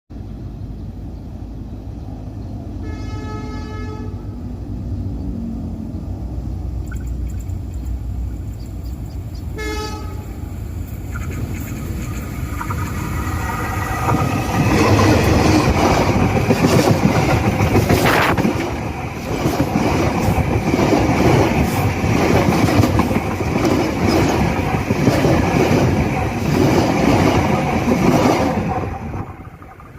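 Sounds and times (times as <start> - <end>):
railway track humming: 0.1 - 29.9
train horn blast: 2.8 - 4.4, 9.6 - 10.5
train wheels clattering over rails: 11.0 - 29.5.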